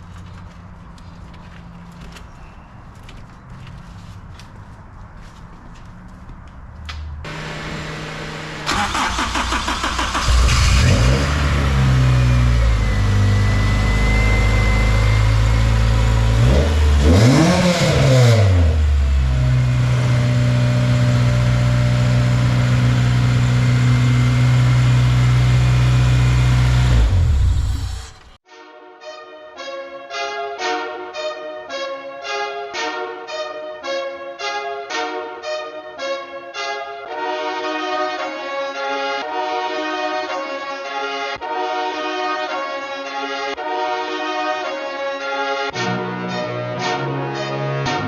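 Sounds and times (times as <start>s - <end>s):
car engine starting and idling: 6.9s - 28.4s
engine revving: 7.3s - 28.4s.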